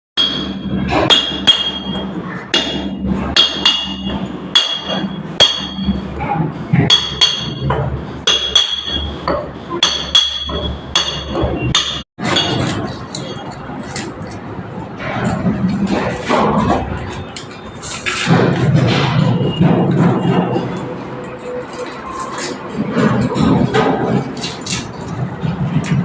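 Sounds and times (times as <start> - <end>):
hammer blows with metallic ring: 0.2 - 13.5.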